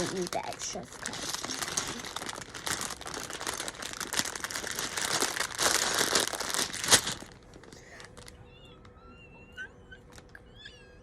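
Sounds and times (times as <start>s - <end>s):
plastic bag crinkling: 0.0s - 9.0s, 10.0s - 10.4s.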